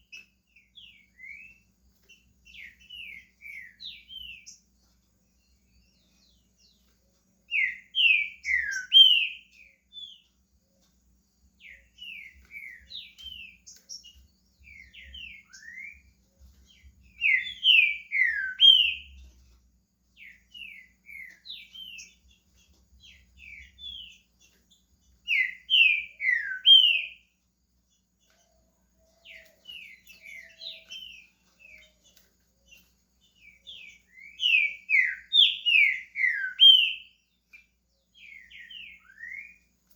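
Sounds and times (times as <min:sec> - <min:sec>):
bird singing whistled phrases: 0:07.5 - 0:10.2, 0:11.6 - 0:16.1, 0:17.0 - 0:19.2, 0:25.2 - 0:27.3, 0:33.3 - 0:37.2, 0:38.2 - 0:39.7.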